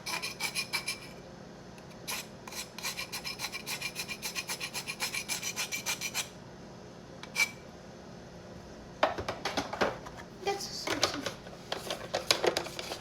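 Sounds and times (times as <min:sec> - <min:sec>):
rapid rasping scrapes: 0:00.0 - 0:01.1, 0:02.1 - 0:06.3.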